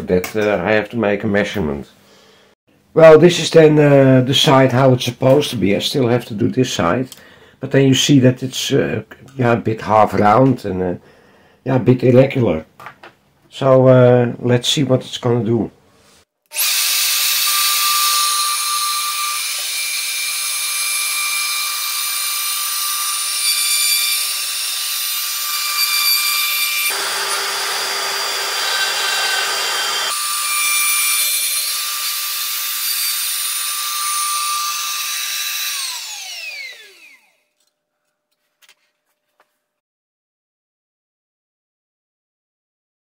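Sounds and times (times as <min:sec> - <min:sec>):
milling machine whining: 0:24.5 - 0:37.4.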